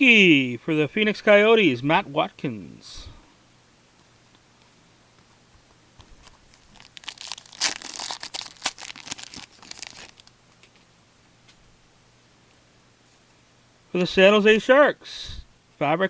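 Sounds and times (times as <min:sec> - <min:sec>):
wrapper tearing and crinkling: 0:06.2 - 0:10.4.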